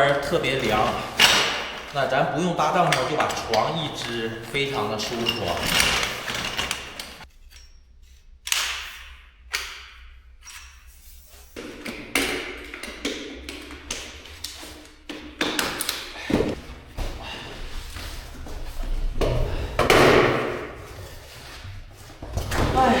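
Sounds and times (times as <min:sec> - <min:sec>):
camping gear clattering on floor: 0:00.0 - 0:07.3.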